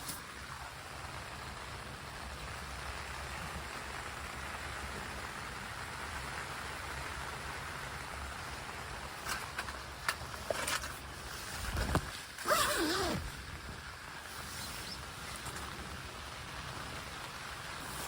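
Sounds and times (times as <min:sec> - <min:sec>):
steady rain falling: 0:00.0 - 0:18.0
short scratchy sounds: 0:12.4 - 0:13.4.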